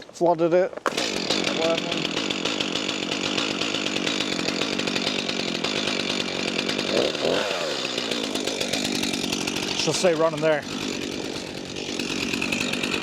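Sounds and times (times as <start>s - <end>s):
chainsaw running: 0.8s - 13.0s.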